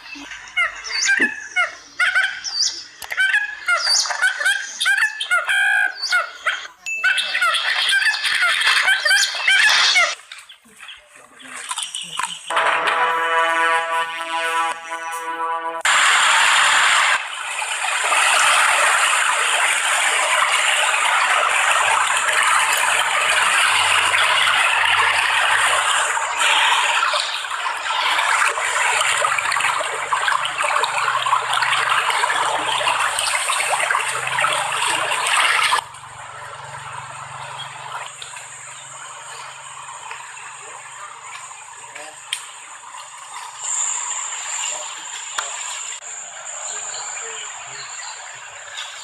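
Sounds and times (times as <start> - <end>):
rushing water: 11.3 - 49.0.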